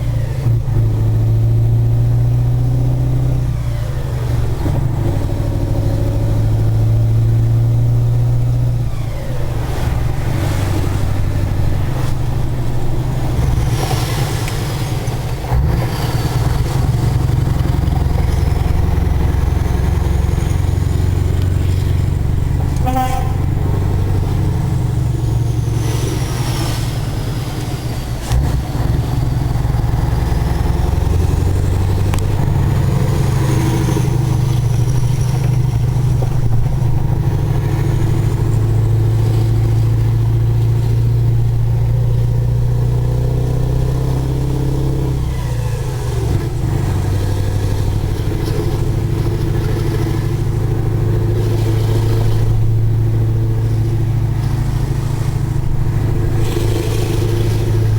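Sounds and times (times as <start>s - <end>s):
diesel engine deep drone: 0.0s - 57.9s.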